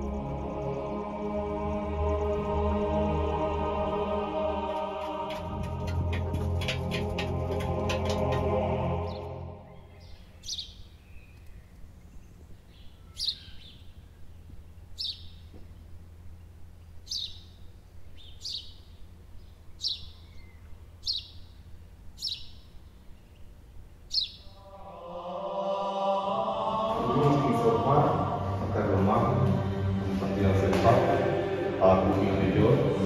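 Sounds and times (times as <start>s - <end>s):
choral chant: 0.0s - 10.2s, 24.5s - 33.0s
steady low rumble: 0.0s - 33.0s
bird calling: 4.9s - 24.9s.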